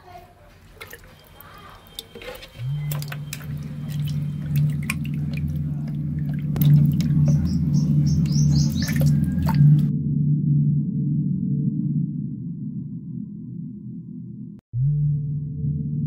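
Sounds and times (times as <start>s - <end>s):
low steady hum: 0.2s - 14.6s
high chirps: 1.0s - 5.6s, 6.6s - 9.9s.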